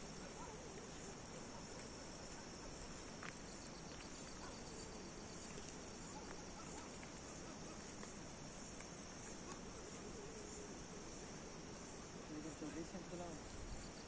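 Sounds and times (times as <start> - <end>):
crickets chirping in high trill: 0.0 - 14.0
fast pulsing insect chirp: 0.0 - 14.0
faint ticks: 3.0 - 9.7.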